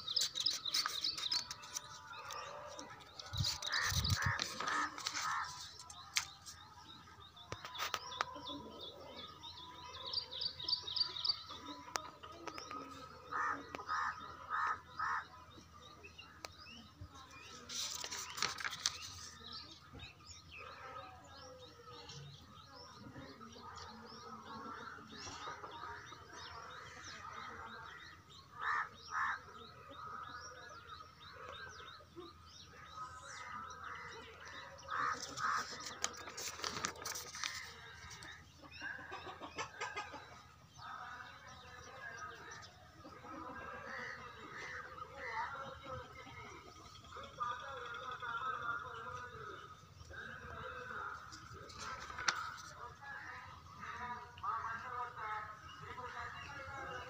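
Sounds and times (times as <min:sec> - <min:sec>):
paper page rustling: 0:00.0 - 0:06.6, 0:17.6 - 0:19.5, 0:35.1 - 0:38.2
birds chirping and calling: 0:00.0 - 0:57.0.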